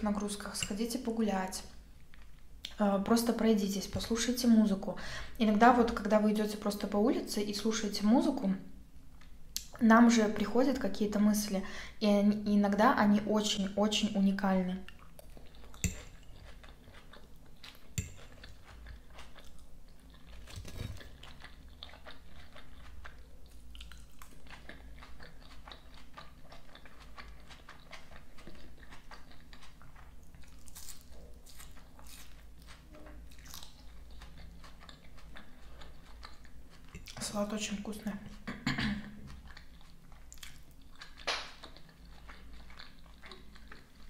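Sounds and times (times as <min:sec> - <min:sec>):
chewing crunchy salad: 0:14.0 - 0:44.0.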